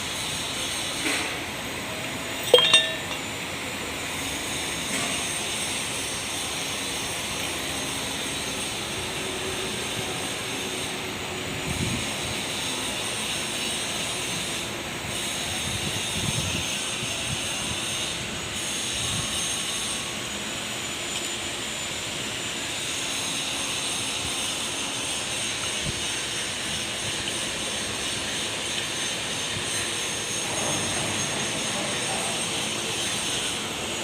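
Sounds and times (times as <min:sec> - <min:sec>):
sharp metallic clinks: 0:02.4 - 0:03.3.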